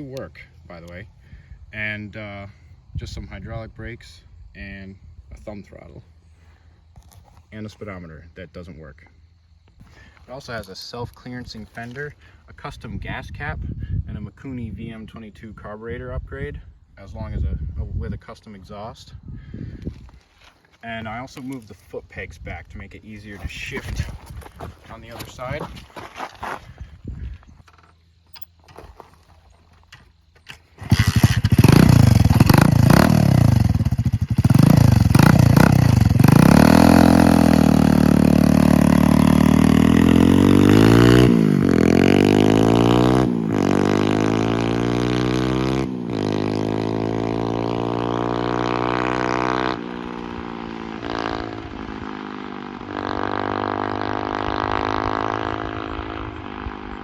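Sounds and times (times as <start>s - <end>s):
motorbike shifting through gears: 29.9s - 57.0s
mini bike engine revving: 30.5s - 57.0s.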